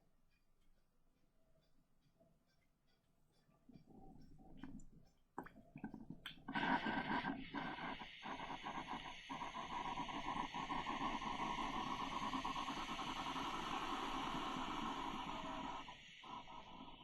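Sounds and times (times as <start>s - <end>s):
espresso machine droning: 6.5s - 17.0s.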